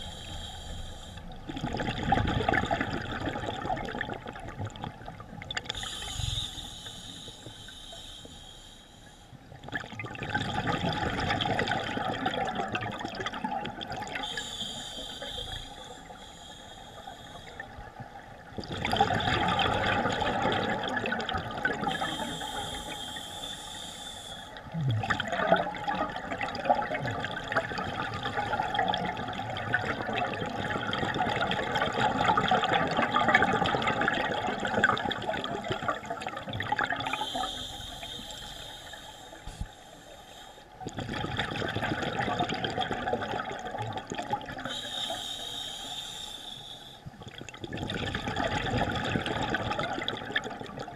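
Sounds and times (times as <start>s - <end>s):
regulator inhalation hiss: 0.0s - 1.3s, 5.8s - 9.3s, 14.2s - 17.7s, 21.9s - 24.6s, 37.1s - 40.8s, 44.7s - 47.1s
exhaled bubbles rushing: 1.5s - 5.6s, 9.6s - 14.2s, 18.5s - 22.0s, 24.7s - 37.2s, 40.8s - 44.7s, 47.2s - 50.9s.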